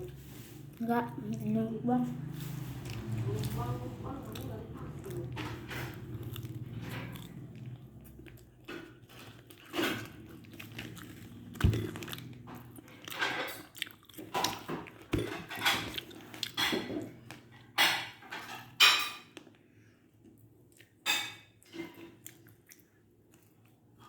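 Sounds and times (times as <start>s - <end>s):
person chewing crunchy food: 4.2s - 17.6s, 20.2s - 24.0s.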